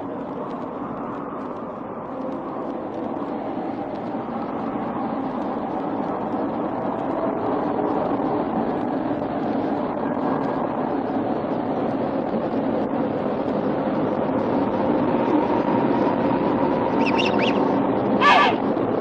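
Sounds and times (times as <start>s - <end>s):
high bird calls: 17.0s - 18.6s.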